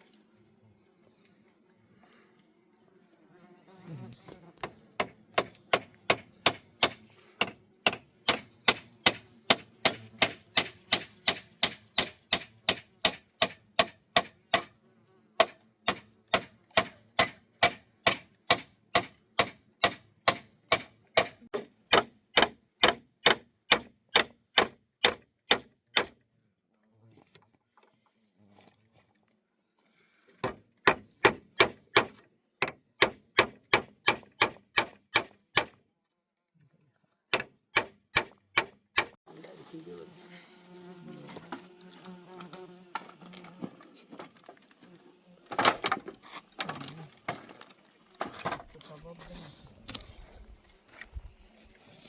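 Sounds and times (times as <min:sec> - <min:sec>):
hand tool striking timber: 0:04.6 - 0:14.8, 0:15.4 - 0:26.2, 0:30.4 - 0:35.8, 0:37.3 - 0:39.2.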